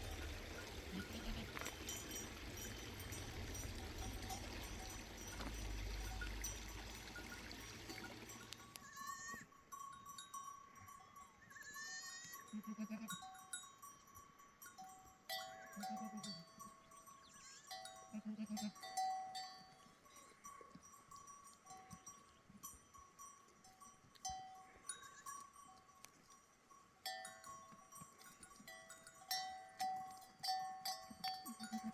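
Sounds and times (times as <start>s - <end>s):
sheep bleating: 0.0s - 1.8s, 8.7s - 9.5s, 11.6s - 13.2s, 17.4s - 18.8s, 31.5s - 31.9s
animal bells clinking: 0.0s - 31.9s.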